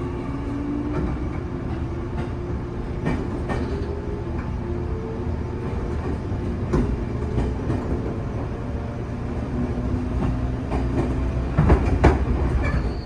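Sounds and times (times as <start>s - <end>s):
train rumble: 0.0s - 13.0s
rail-joint clacks: 0.9s - 4.6s, 5.6s - 8.2s, 10.1s - 13.0s.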